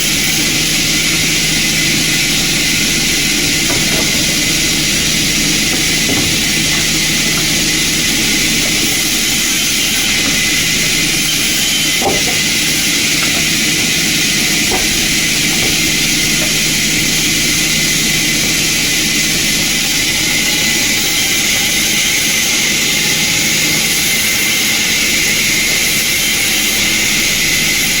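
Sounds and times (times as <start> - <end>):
low machinery hum: 0.0 - 22.0
sawmill machinery hiss: 0.0 - 28.0.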